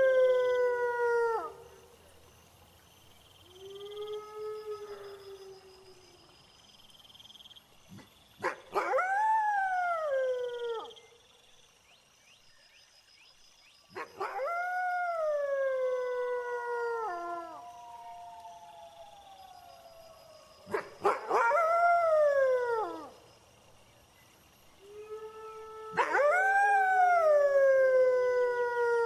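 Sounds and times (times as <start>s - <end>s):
crickets chirping: 0.0s - 29.0s
wolf howling: 24.8s - 29.0s.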